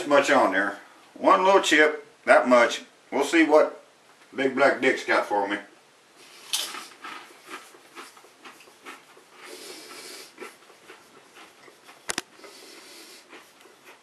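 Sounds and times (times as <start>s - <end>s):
chip crunching and chewing: 6.2s - 14.0s.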